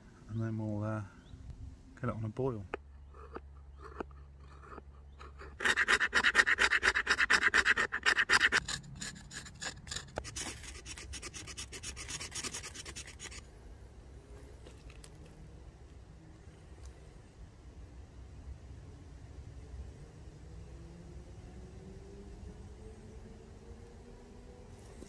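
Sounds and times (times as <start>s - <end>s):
rasping scraping strokes: 3.1s - 13.5s.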